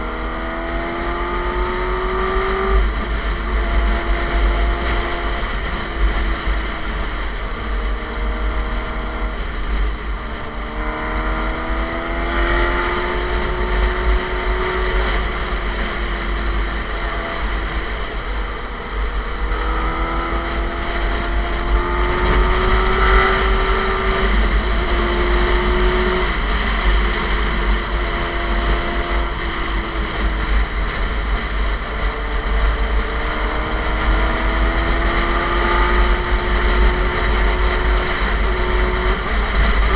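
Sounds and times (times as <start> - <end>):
motorcycle engine revving: 0.0 - 39.9
wind buffeting microphone: 12.9 - 39.9.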